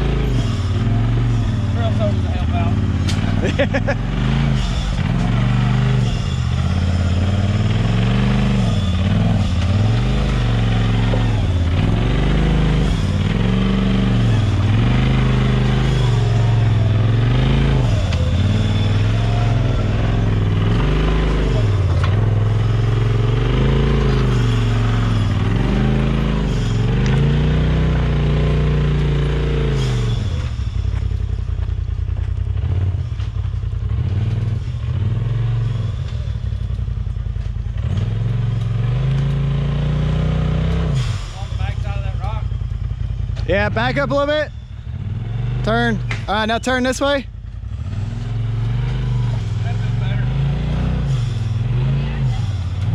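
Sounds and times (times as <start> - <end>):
rapid engine clattering: 0.0 - 39.4
off-road vehicle engine revving: 0.0 - 52.9.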